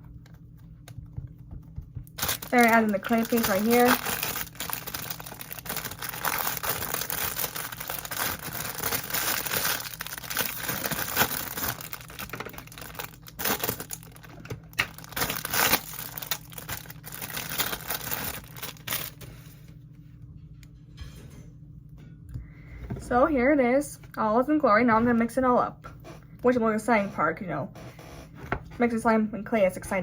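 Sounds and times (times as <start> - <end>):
crinkling handling noise: 2.1 - 20.1.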